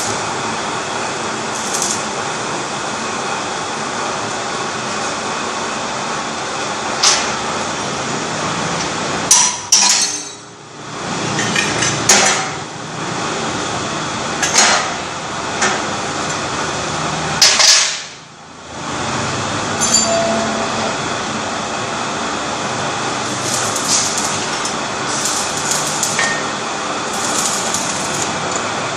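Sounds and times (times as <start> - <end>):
machine running: 0.0 - 2.5, 19.2 - 28.9
sharp metallic clanks: 19.8 - 20.8, 27.1 - 28.3.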